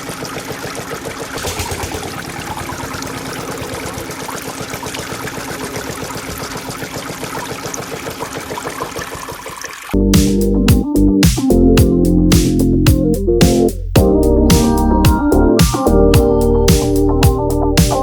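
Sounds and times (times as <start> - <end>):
water pouring and trickling: 0.0 - 10.0
water pump motor running: 0.0 - 10.0
electronic music: 10.0 - 18.0.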